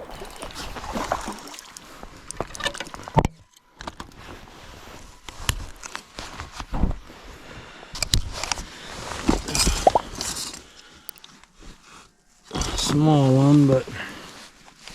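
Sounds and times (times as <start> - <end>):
water sloshing: 0.0 - 1.9, 9.6 - 10.2.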